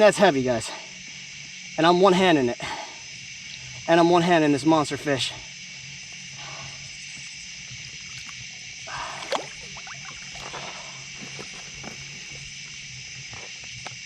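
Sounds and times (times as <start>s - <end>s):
night insects droning: 0.0s - 14.0s
water splashing: 8.1s - 12.1s.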